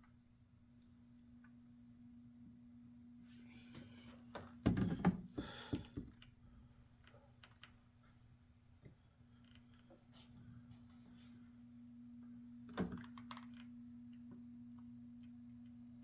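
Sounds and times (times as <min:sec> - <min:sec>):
steady low hum: 0:05.4 - 0:12.7.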